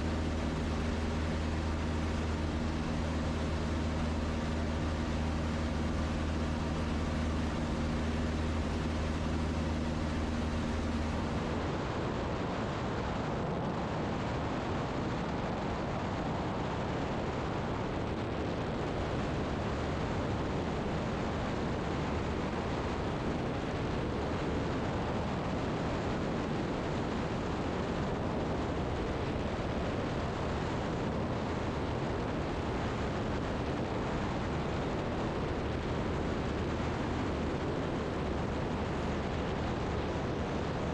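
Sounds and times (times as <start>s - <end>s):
rushing airflow: 0.0s - 12.0s
aircraft engine and propeller drone: 0.0s - 40.9s.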